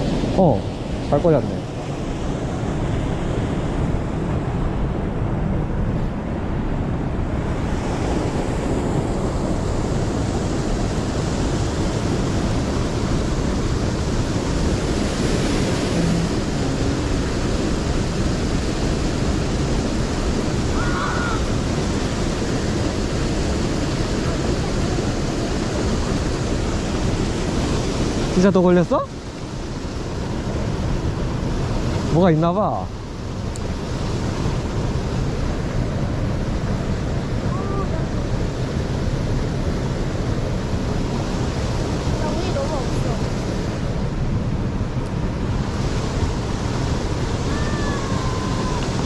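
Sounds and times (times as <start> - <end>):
stream water rushing: 0.0 - 49.0
wind buffeting microphone: 32.9 - 49.0.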